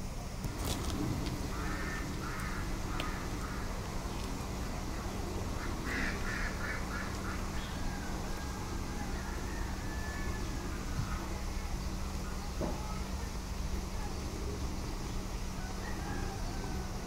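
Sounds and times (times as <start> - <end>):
low background rumble: 0.0 - 17.0
bird calls: 0.6 - 13.3.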